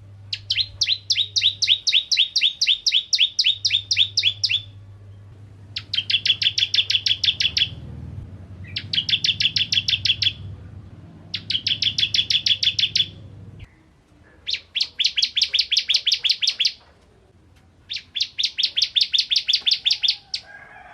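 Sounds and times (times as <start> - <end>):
bird chip notes: 0.2 - 7.9, 8.6 - 10.5, 11.3 - 16.8.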